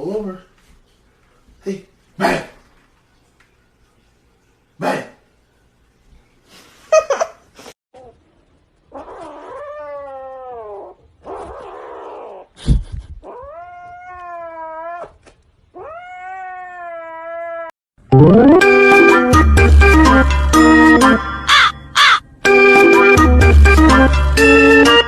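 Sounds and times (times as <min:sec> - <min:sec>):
cat yowling: 0:08.9 - 0:12.5, 0:13.2 - 0:17.7.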